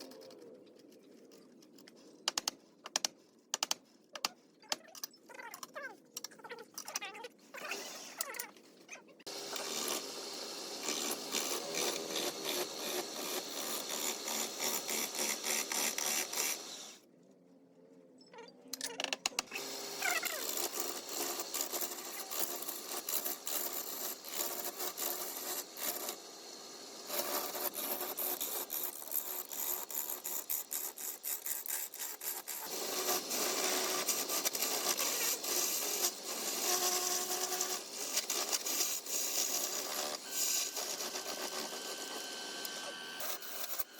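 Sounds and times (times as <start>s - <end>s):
tool scraping spinning wood: 9.3s - 16.9s, 19.6s - 26.3s, 27.0s - 43.9s.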